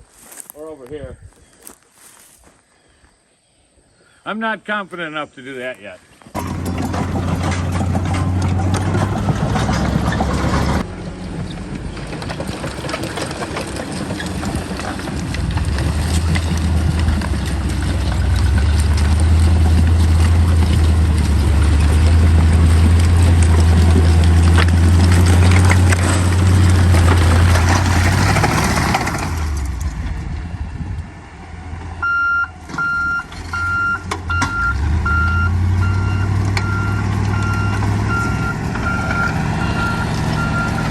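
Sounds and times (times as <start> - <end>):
engine running under load: 6.3 - 40.9
reversing alarm beeping: 32.0 - 40.9.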